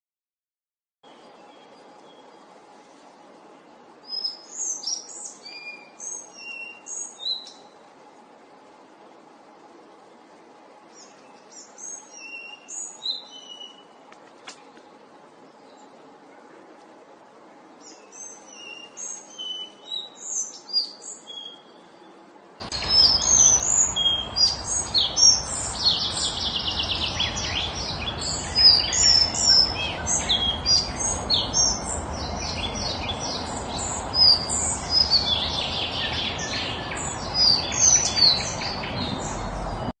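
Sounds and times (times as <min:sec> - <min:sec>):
steady background noise: 0:01.0 - 0:39.9
bird singing chirps and trills: 0:03.3 - 0:07.8, 0:10.8 - 0:14.0, 0:17.7 - 0:39.9.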